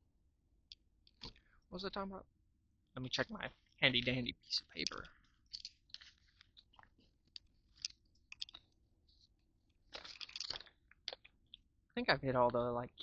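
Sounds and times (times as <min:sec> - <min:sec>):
paper crinkling: 0:04.9 - 0:09.3, 0:09.9 - 0:11.2
paper rustle: 0:05.5 - 0:07.1, 0:09.9 - 0:10.7.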